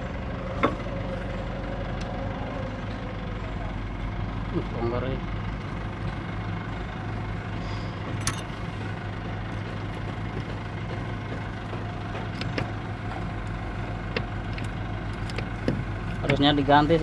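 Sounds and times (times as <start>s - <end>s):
engine idling low hum: 0.0s - 17.0s
sharp clicks of gear parts: 8.1s - 8.8s, 12.1s - 16.4s.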